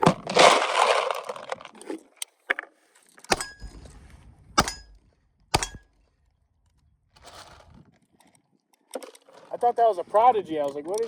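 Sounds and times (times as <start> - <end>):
pistol shots: 3.3 - 5.9
metallic ring of steel target: 3.3 - 6.0.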